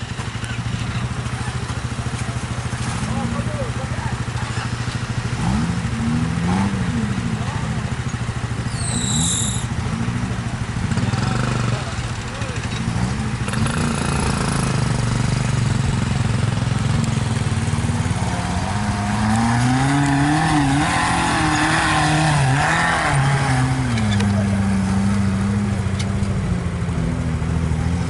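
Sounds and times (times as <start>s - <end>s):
vehicle engines running: 0.0s - 28.0s
engine revving: 2.6s - 8.1s, 8.7s - 28.0s.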